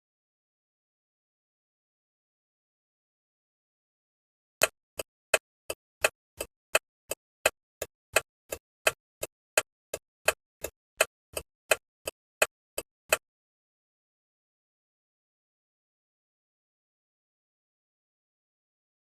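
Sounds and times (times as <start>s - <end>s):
turn signal indicator ticking: 4.6s - 13.2s.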